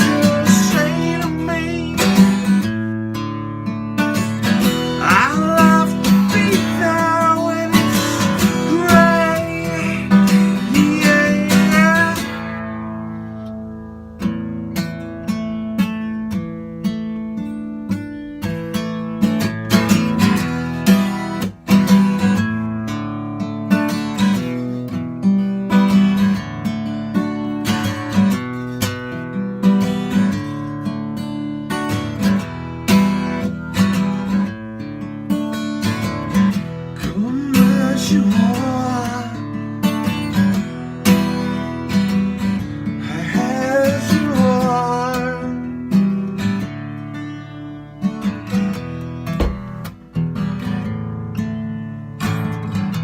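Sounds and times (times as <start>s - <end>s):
guitar lead with bent notes: 0.0s - 22.4s, 31.8s - 51.1s
acoustic guitar strumming: 0.0s - 53.0s.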